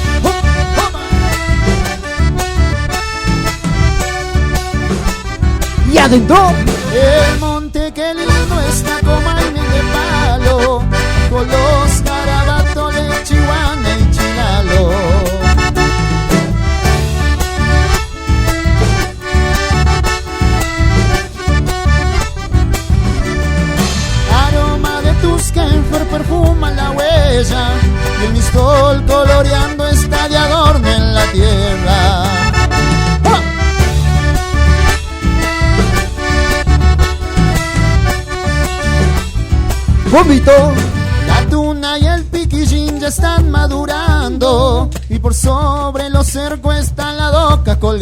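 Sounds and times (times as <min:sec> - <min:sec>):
accordion playing melody: 0:00.0 - 0:47.9
steady bass: 0:00.0 - 0:48.0
steady low drum beat: 0:00.0 - 0:48.0
melody chords: 0:32.4 - 0:41.5.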